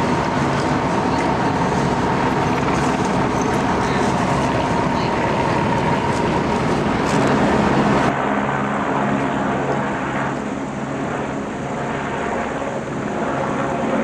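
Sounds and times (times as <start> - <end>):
heavy engine running: 0.0 - 8.2.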